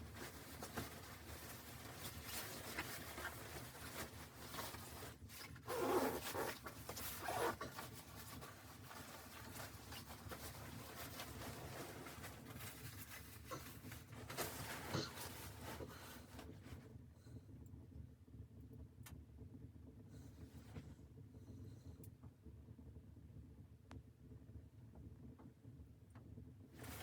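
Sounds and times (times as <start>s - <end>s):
rustling and scraping: 0.0s - 16.9s, 26.8s - 27.0s.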